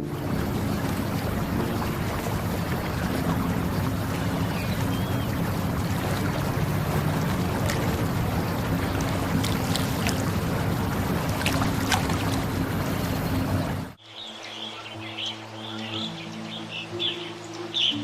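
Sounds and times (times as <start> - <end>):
low motor hum: 0.0 - 14.0
rushing water noise: 0.0 - 18.0.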